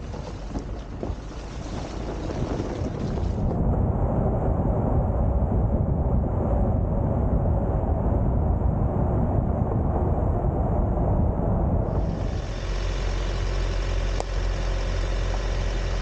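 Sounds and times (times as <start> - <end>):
tyre noise on trail: 0.0 - 3.6, 11.9 - 16.0
vehicle engine rumble: 0.0 - 8.2, 9.2 - 16.0.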